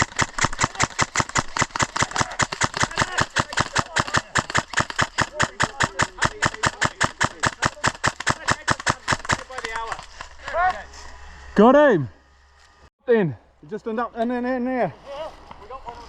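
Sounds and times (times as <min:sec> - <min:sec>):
airsoft gun rapid firing: 0:00.0 - 0:09.9.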